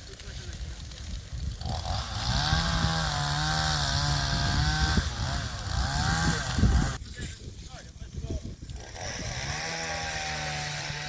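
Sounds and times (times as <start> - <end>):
chainsaw running at high revs: 1.6 - 7.0, 8.6 - 11.0.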